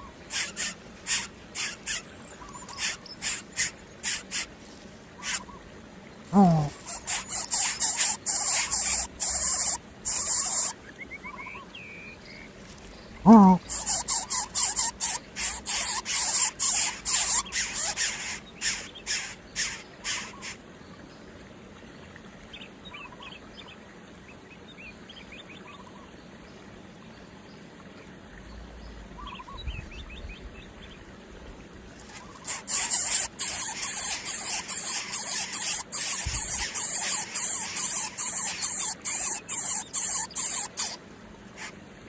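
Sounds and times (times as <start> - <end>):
small animal squeaking shrilly: 0.3 - 2.0, 2.6 - 4.5, 6.4 - 10.8, 13.3 - 20.3, 32.1 - 41.0.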